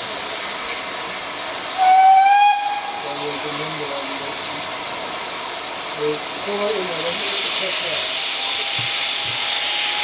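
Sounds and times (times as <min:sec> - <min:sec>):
hiss of escaping steam: 0:00.0 - 0:10.0
steam locomotive whistle: 0:01.8 - 0:03.1, 0:09.6 - 0:10.0.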